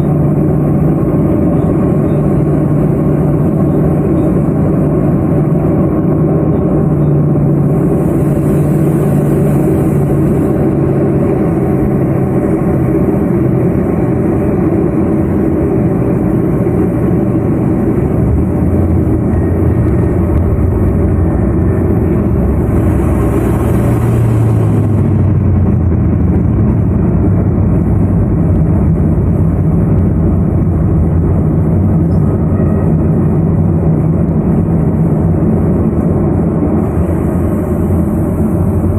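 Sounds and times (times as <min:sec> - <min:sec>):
turboprop engines droning: 0:00.0 - 0:38.9.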